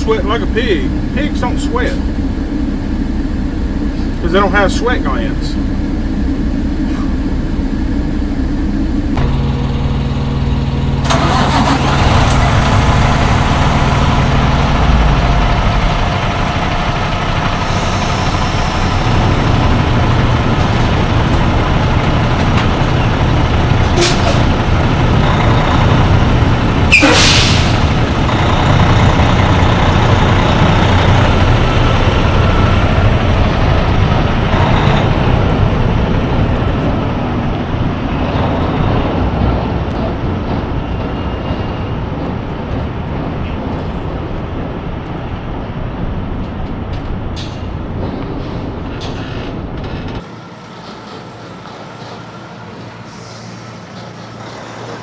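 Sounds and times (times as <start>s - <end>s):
diesel truck engine running: 0.0s - 55.0s
air brakes hissing: 1.8s - 4.8s, 5.4s - 9.2s, 24.0s - 24.5s, 26.9s - 28.1s, 51.3s - 55.0s.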